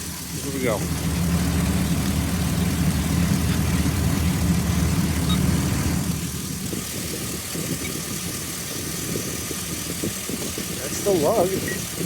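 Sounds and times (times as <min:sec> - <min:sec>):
pickup engine idling: 0:00.0 - 0:06.7.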